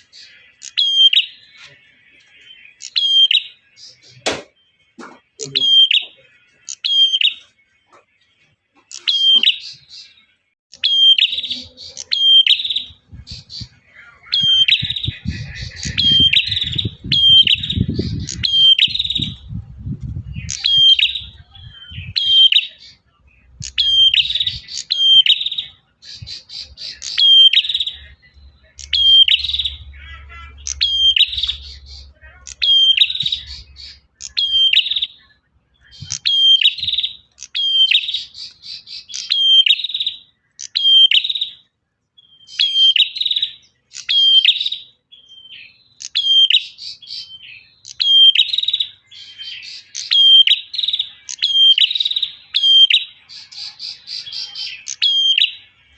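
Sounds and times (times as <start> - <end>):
bird chirping song: 0.0 - 55.9
low rumble: 14.8 - 22.2.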